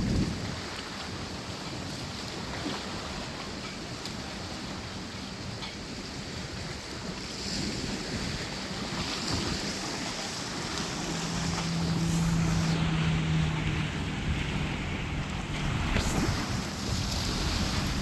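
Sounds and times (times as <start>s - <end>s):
wind buffeting microphone: 0.0s - 1.3s, 6.6s - 18.0s
river water lapping: 0.0s - 18.0s
steady low hum: 8.7s - 18.0s.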